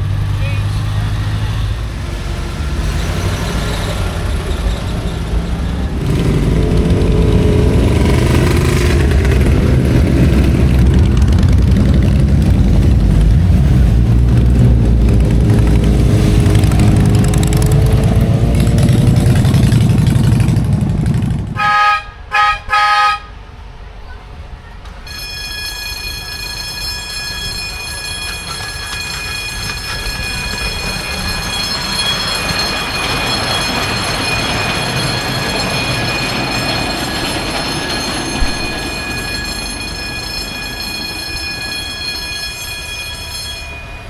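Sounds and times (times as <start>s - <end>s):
vehicle engine running loudly: 0.0s - 21.7s
horn toots: 21.6s - 23.4s.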